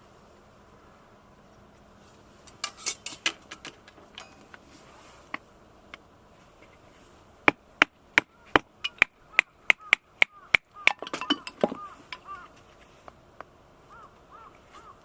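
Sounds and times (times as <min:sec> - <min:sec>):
wood handling clicks and knocks: 0:02.5 - 0:04.7, 0:07.5 - 0:12.7
axe chopping firewood: 0:07.4 - 0:11.9.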